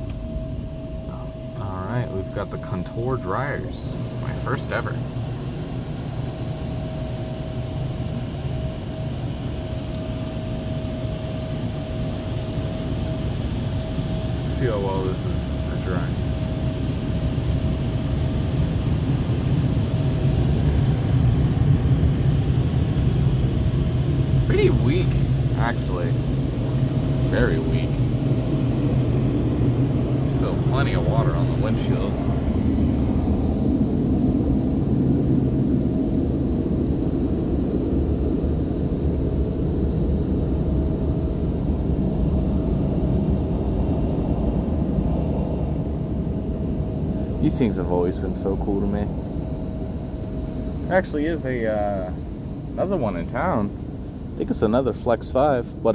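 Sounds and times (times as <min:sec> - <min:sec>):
car wash air dryers blowing: 0:00.0 - 0:10.9, 0:19.8 - 0:35.8
faint steady hum: 0:00.0 - 0:55.9.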